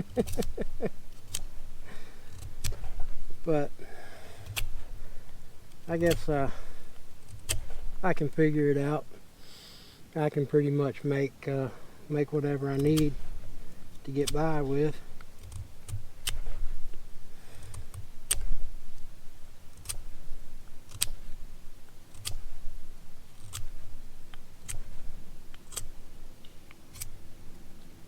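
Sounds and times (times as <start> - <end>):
sharp clicks: 0.0 - 3.2, 4.4 - 8.4, 12.7 - 19.1, 19.7 - 22.6, 23.4 - 27.9
rustling: 0.0 - 10.0, 11.6 - 28.0.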